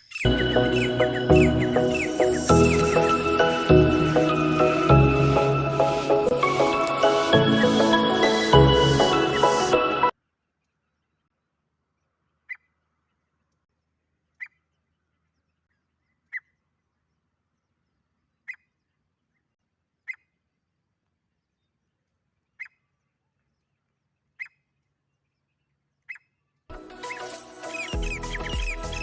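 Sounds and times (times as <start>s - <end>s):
francolin call notes: 0.2s - 10.1s
music: 0.3s - 10.1s, 26.7s - 29.0s.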